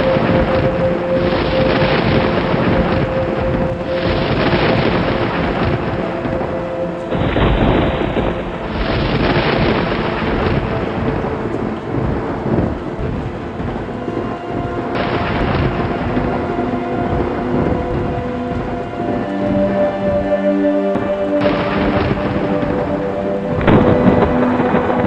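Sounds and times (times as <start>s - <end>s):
rolling thunder: 0.0s - 25.0s
steady rain: 0.0s - 25.0s.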